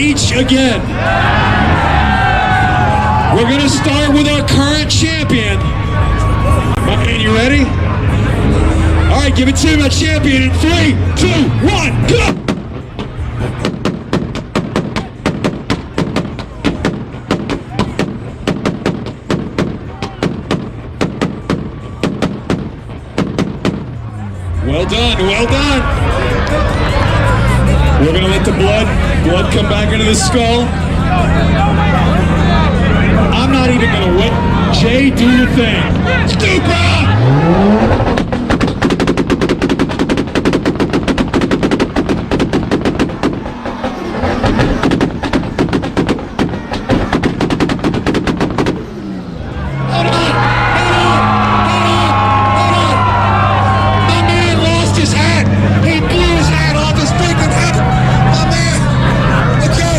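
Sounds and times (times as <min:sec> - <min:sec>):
engine drone: 0:00.0 - 0:59.9
exhaust popping and banging: 0:06.7 - 0:26.1, 0:34.7 - 0:59.9.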